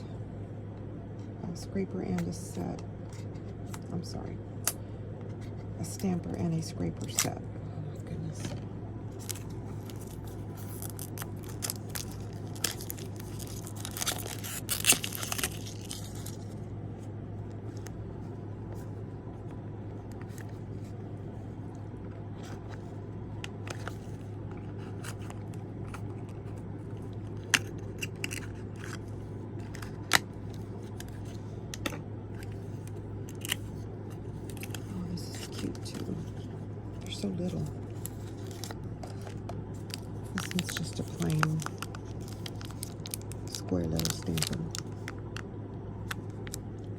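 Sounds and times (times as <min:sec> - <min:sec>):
plastic packaging crinkling: 0:09.1 - 0:16.6, 0:32.4 - 0:36.4, 0:37.0 - 0:45.4.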